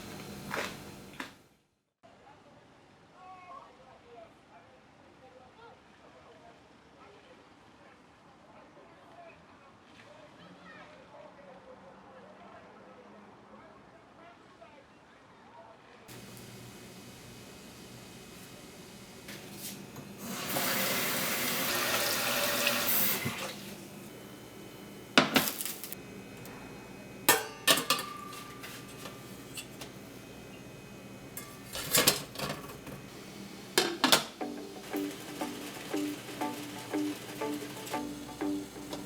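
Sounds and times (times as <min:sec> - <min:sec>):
kitchen tap running: 0:16.1 - 0:39.0
dishes and utensils clinking: 0:25.2 - 0:26.0, 0:27.2 - 0:30.1, 0:31.3 - 0:33.1, 0:33.7 - 0:39.0
plucked-string music: 0:33.7 - 0:39.0.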